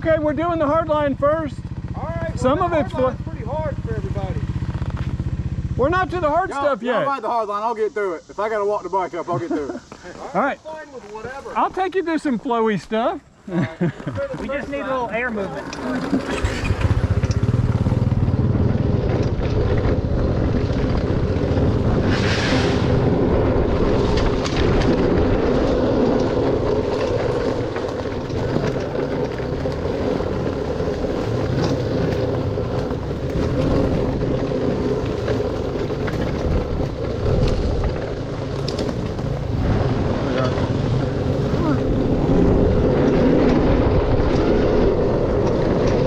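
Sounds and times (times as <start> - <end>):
dirt bike engine running: 0.0 - 7.4, 13.8 - 46.0
brief hiss: 22.1 - 22.9.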